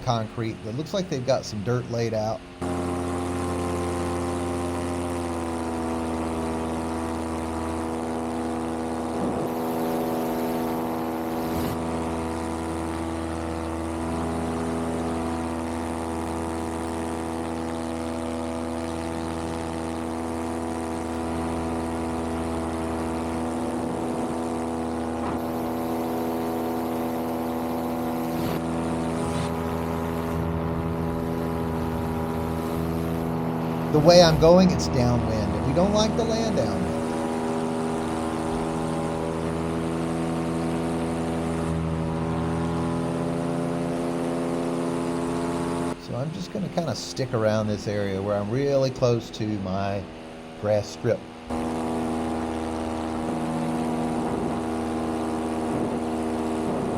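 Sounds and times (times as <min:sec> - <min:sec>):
paramotor engine and propeller: 0:00.0 - 0:56.9.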